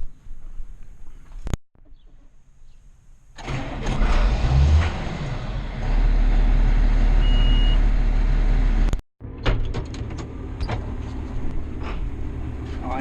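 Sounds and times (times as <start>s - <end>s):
tractor engine starting and running: 3.3s - 13.0s
short high beep: 7.2s - 7.8s.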